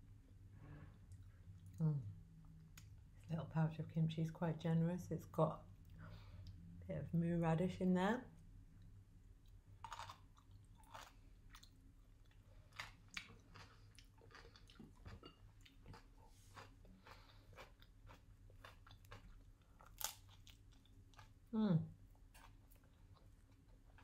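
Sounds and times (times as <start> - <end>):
crunchy chewing: 9.8 - 21.4.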